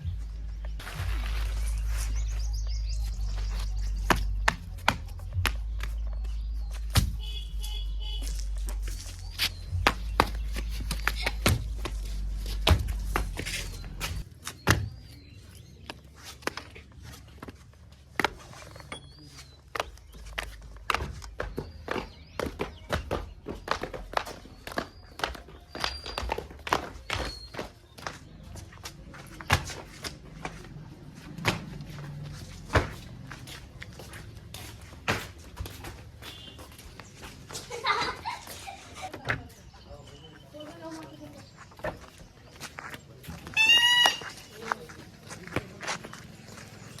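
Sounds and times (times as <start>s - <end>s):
knocks and thuds: 6.9s - 7.4s.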